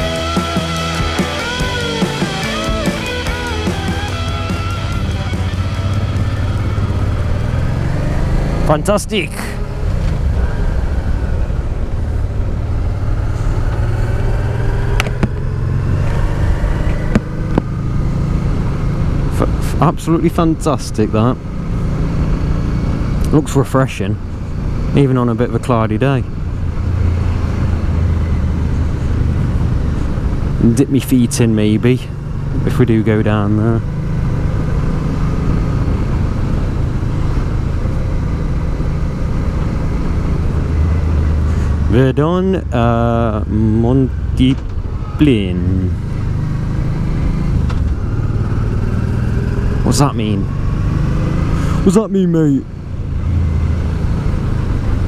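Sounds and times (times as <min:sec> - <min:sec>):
motorcycle engine running: 0:00.0 - 0:08.9, 0:43.4 - 0:51.8
motorcycle engine cruising: 0:00.0 - 0:55.0.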